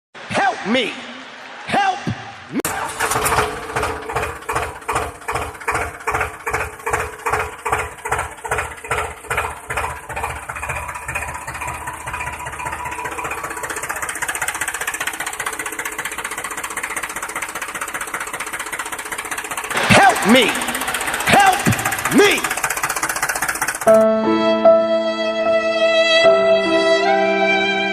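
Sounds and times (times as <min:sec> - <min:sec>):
engine chugging: 0:02.6 - 0:24.1.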